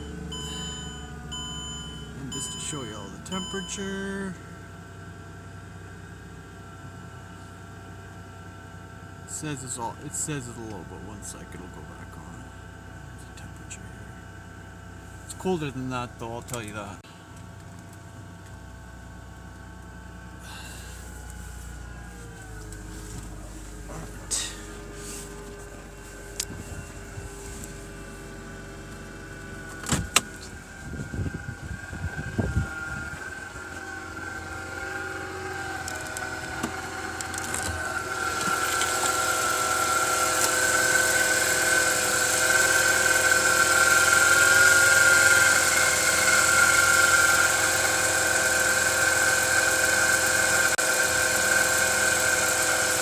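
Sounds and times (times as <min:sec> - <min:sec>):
car engine idling: 0:00.0 - 0:53.0
high steady whine: 0:29.7 - 0:34.8.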